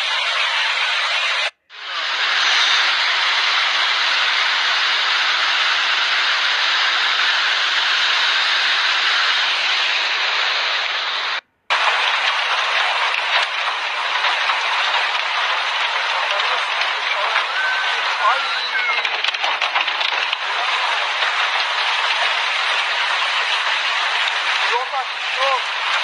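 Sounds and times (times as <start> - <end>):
heavy rain downpour: 0.0 - 26.0
faint rain patter: 11.7 - 26.0.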